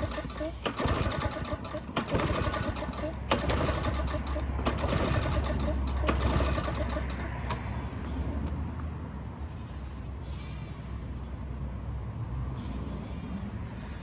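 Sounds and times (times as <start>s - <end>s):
push mower engine running: 0.0s - 7.7s.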